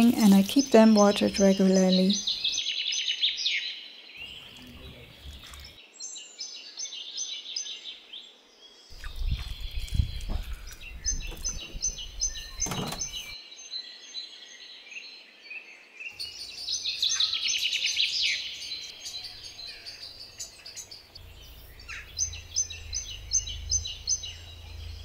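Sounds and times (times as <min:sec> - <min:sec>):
repeated high bird chirp: 0:00.0 - 0:03.4, 0:08.9 - 0:13.4, 0:16.2 - 0:25.0
songbirds singing: 0:00.0 - 0:25.0.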